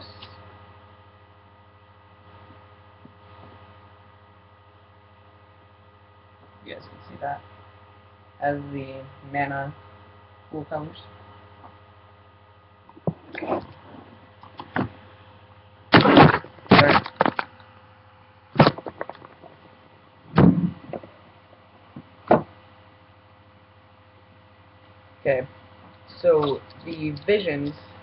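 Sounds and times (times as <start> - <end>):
steady mains hum: 0.0 - 28.0
cardboard rustles and knocks: 18.6 - 19.5.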